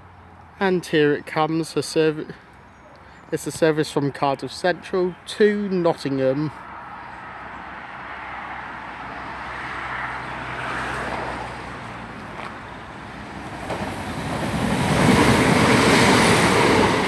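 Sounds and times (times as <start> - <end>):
train passing on track: 5.8 - 17.0.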